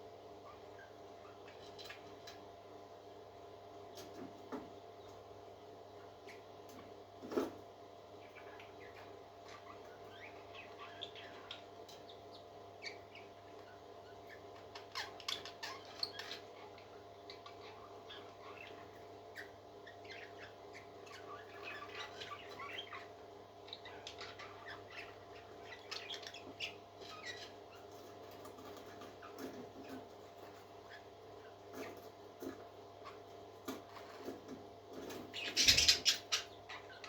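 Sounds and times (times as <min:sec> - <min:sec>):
chick squeaking and cheeping: 0:35.0 - 0:37.0.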